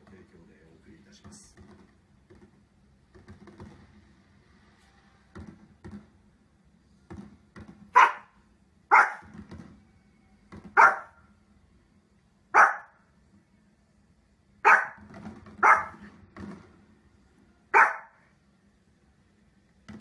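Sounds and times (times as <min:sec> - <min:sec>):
small dog barking: 0:07.9 - 0:09.3, 0:10.7 - 0:11.2, 0:12.5 - 0:13.0, 0:14.6 - 0:16.1, 0:17.7 - 0:18.2.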